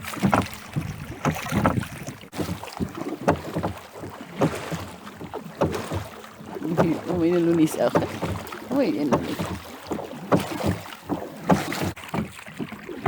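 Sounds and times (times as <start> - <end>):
wind on microphone: 0.0 - 2.4
oars knocking and splashing: 0.0 - 13.0.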